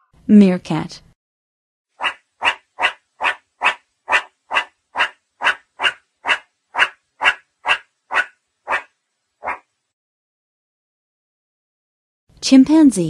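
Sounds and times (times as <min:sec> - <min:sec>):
meerkat calling: 0:02.0 - 0:09.6.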